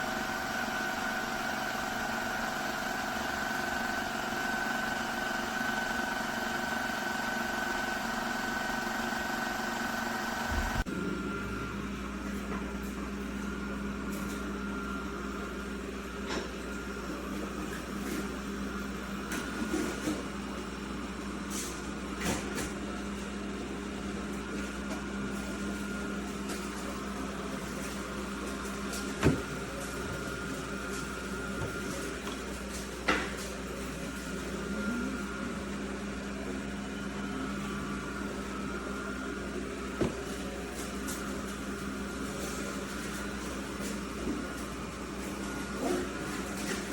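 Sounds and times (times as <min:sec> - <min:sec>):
robot vacuum motor hum and whine: 0:00.0 - 0:12.0.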